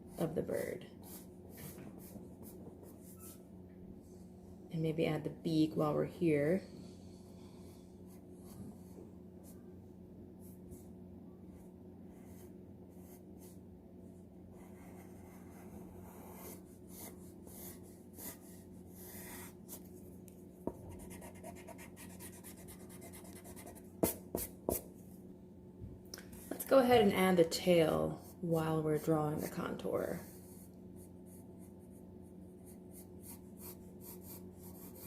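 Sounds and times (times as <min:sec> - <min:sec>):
faint steady hum: 0:00.0 - 0:35.0
pencil sketching on paper: 0:12.1 - 0:13.6, 0:14.5 - 0:19.9, 0:20.7 - 0:24.8, 0:28.1 - 0:35.0
pencil tapping: 0:22.4 - 0:24.9.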